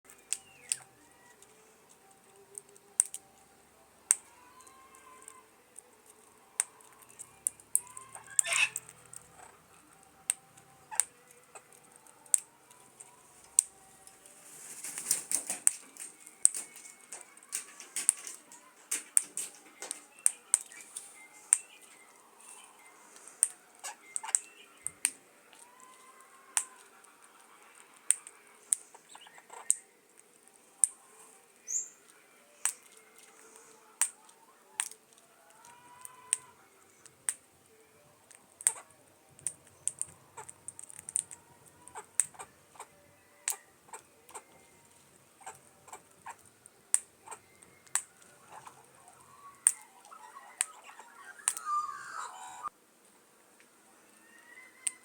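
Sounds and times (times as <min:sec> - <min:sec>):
sharp irregular clicks and taps: 0:00.1 - 0:03.3, 0:10.0 - 0:14.2, 0:15.0 - 0:20.8, 0:28.0 - 0:29.0, 0:34.0 - 0:36.4, 0:38.2 - 0:42.9, 0:45.4 - 0:49.8
bird chirping softly: 0:00.1 - 0:52.7, 0:53.7 - 0:55.0
rustling noise: 0:14.2 - 0:20.1.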